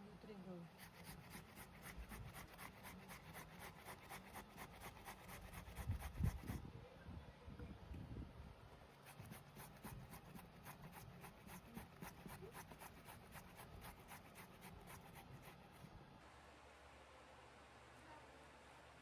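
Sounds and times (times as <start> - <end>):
faint rapid scraping strokes: 0.7 - 6.6, 8.9 - 16.0.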